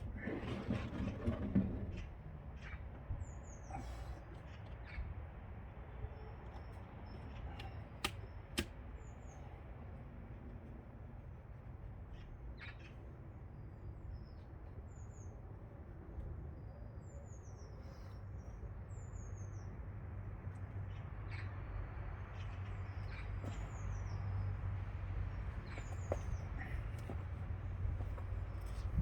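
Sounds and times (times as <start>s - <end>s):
small birds chirping: 20.8s - 29.0s.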